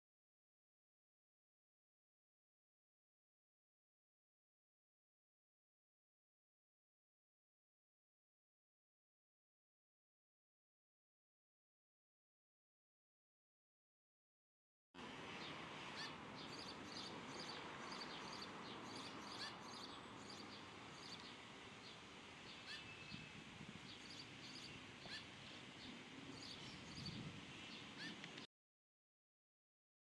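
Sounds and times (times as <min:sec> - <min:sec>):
steady background hiss: 0:15.0 - 0:28.4
small birds chirping: 0:15.1 - 0:28.5.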